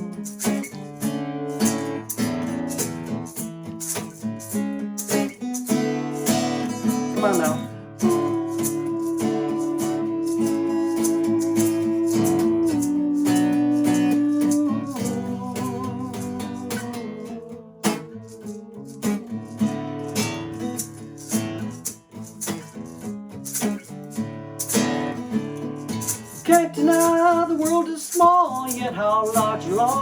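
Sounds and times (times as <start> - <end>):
acoustic guitar strumming: 0.0 - 30.0
shaker percussion: 0.0 - 30.0
long held note: 8.0 - 19.4.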